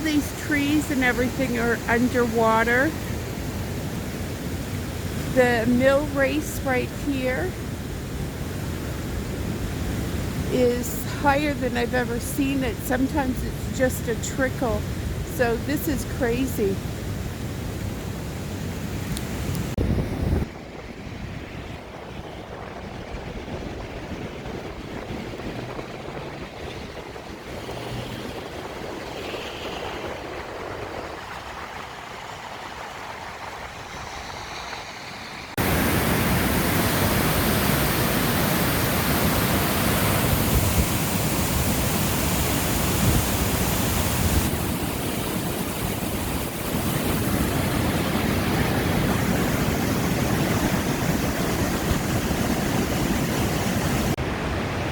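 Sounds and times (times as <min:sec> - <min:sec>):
river water rushing: 0:34.8 - 0:54.9.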